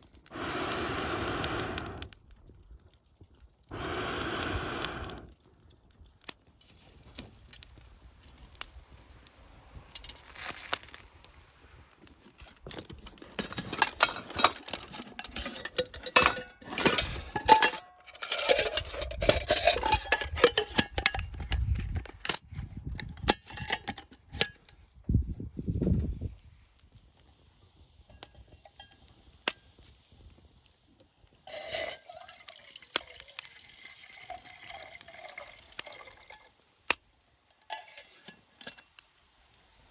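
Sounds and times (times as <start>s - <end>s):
metal cookware clinking and scraping: 13.3s - 22.0s, 23.2s - 24.7s, 31.5s - 32.5s, 37.6s - 39.0s.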